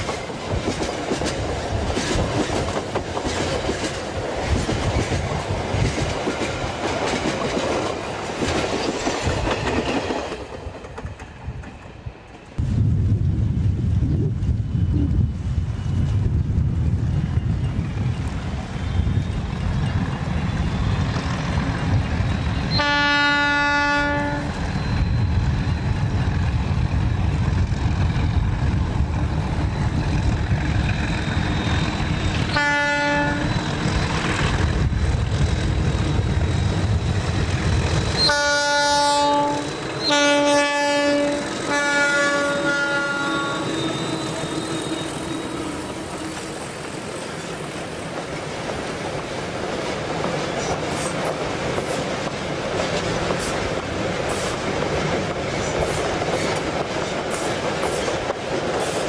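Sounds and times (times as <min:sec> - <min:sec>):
diesel locomotive horn: 0:22.7 - 0:24.6, 0:32.5 - 0:33.6, 0:38.2 - 0:46.6.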